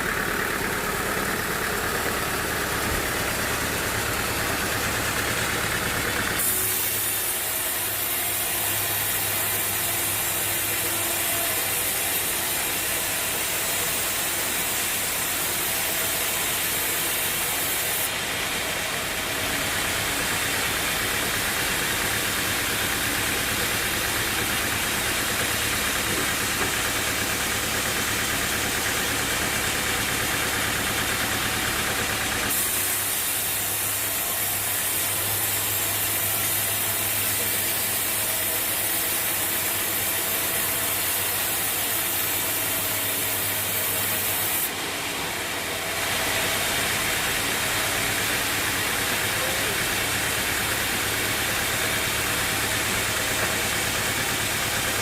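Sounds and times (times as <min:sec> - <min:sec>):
sawmill engine hum: 0:00.0 - 0:55.0
bandsaw blade hiss: 0:06.4 - 0:27.3, 0:32.4 - 0:44.8.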